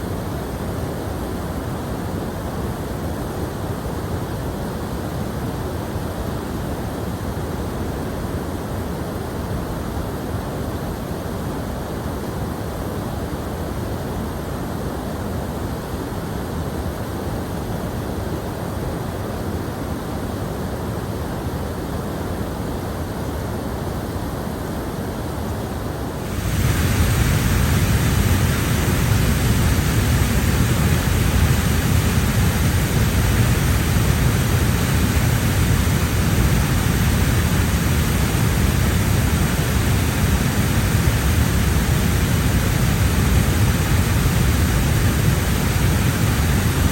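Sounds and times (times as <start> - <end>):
water rushing: 26.1 - 46.9.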